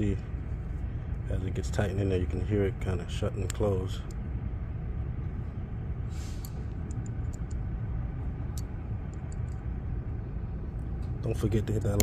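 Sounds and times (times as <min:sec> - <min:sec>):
low background rumble: 0:00.0 - 0:12.0
light metal clicks: 0:03.4 - 0:04.2, 0:06.4 - 0:07.7, 0:08.5 - 0:09.7, 0:10.9 - 0:12.0
brief hiss: 0:06.1 - 0:06.7.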